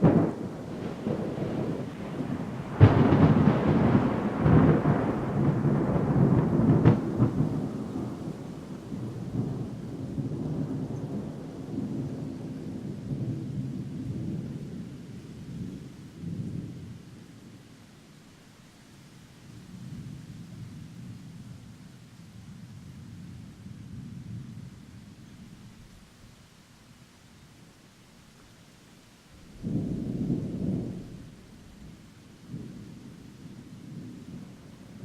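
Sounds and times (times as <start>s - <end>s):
thunder clap: 0.0s - 14.5s
rolling thunder rumble: 0.0s - 17.6s, 19.5s - 26.1s, 29.4s - 35.0s.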